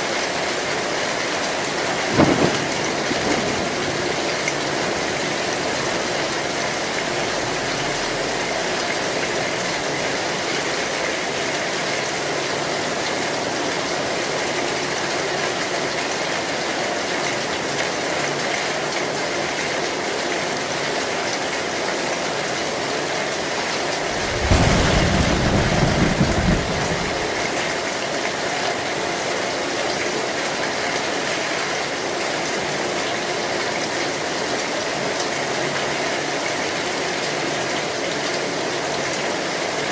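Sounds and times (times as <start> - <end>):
heavy rain on a metal roof: 0.0 - 39.9
thunderclap rumbling: 1.6 - 9.9, 24.0 - 27.9.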